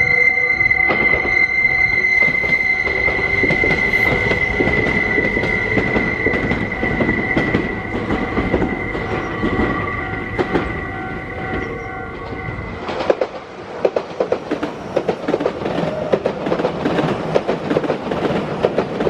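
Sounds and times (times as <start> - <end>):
train wheels squealing: 0.0 - 13.4.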